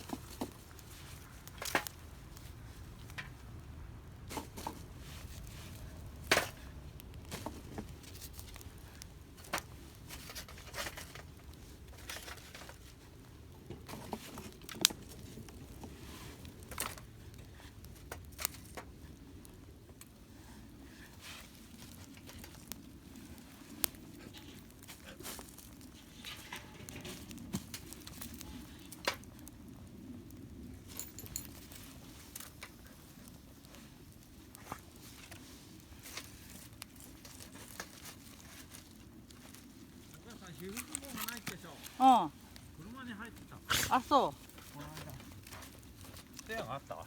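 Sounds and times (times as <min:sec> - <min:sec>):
campfire crackling: 0:00.0 - 0:47.0.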